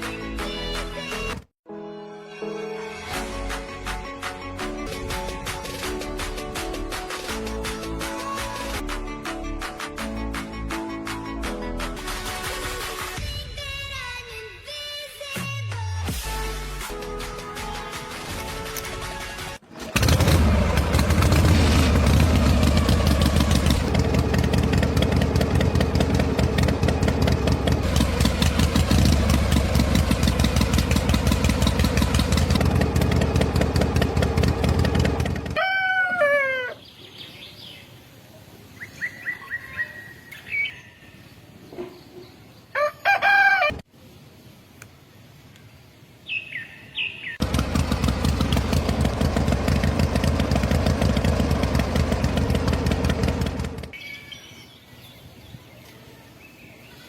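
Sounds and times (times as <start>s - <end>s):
small engine running: 19.8s - 35.6s, 47.4s - 54.0s
rooster crowing: 35.5s - 36.8s, 42.7s - 43.8s
birds chirping: 36.5s - 43.0s, 45.5s - 48.8s, 53.9s - 57.0s.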